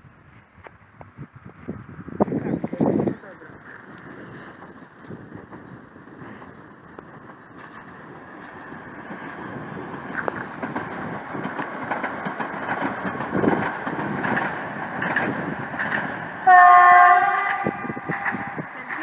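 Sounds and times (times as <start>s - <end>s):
train running: 0.0s - 19.0s
wheels clicking over rail joints: 0.6s - 19.0s
train horn blast: 16.4s - 18.7s.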